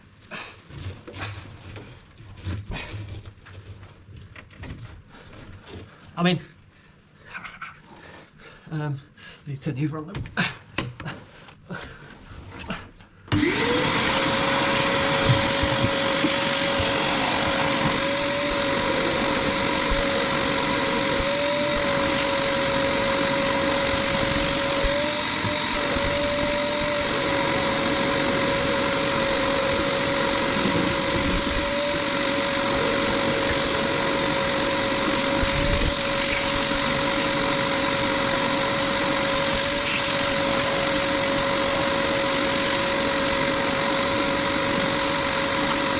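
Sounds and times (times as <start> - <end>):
vacuum cleaner motor whine: 13.3 - 45.9.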